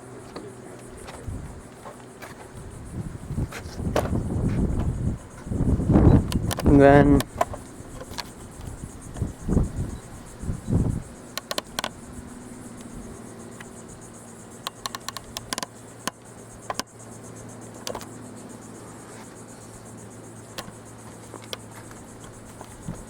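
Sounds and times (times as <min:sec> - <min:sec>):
insects trilling: 0:00.0 - 0:23.0
sharp clicks: 0:04.0 - 0:10.0, 0:11.0 - 0:12.1, 0:13.6 - 0:13.8, 0:14.6 - 0:16.9, 0:17.8 - 0:18.2, 0:20.5 - 0:20.8.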